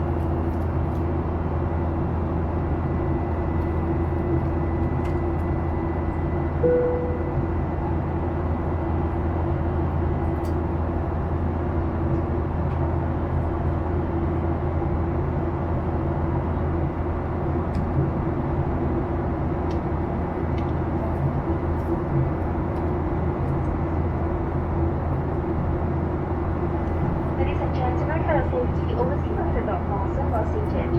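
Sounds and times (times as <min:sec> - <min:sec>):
airplane cabin engine hum: 0:00.0 - 0:30.9.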